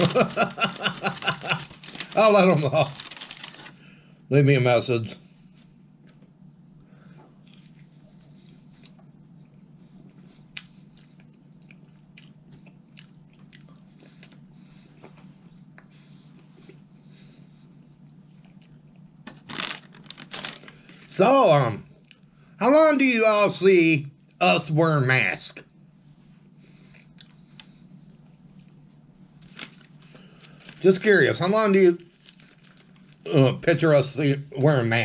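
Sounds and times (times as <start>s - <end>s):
man chewing crispy food: 0.0s - 3.8s, 7.4s - 15.1s, 18.3s - 21.0s, 26.8s - 28.8s, 32.0s - 33.3s
paper bag crinkling: 0.0s - 3.8s, 19.3s - 21.2s, 29.4s - 33.3s
faint low hum: 0.0s - 35.0s.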